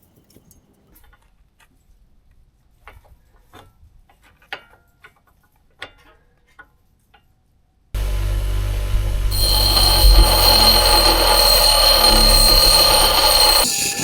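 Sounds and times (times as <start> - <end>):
sharp metallic clinks: 9.3 - 14.0.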